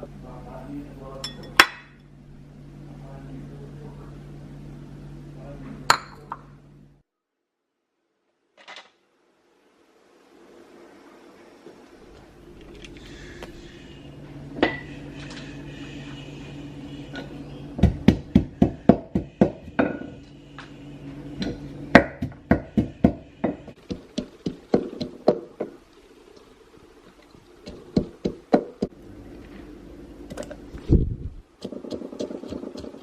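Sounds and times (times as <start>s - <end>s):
faint steady hum: 0.0s - 33.0s
knife chopping food: 31.6s - 33.0s.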